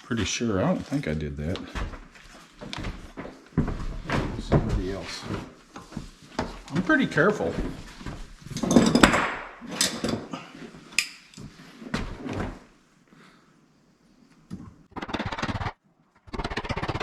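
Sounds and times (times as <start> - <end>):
rough scraping noises: 0.4 - 8.9
door knocks and thuds: 1.6 - 5.1.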